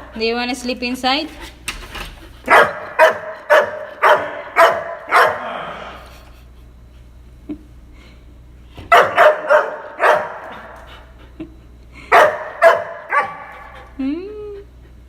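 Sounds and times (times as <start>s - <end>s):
dog barking: 2.5s - 5.5s, 8.9s - 10.6s, 12.1s - 13.8s.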